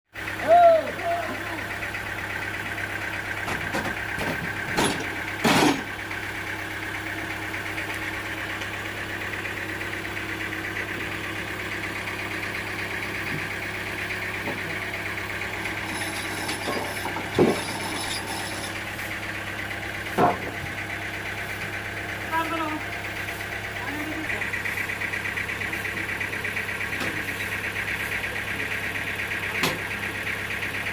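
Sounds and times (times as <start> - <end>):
sawmill engine running: 0.2 - 30.9.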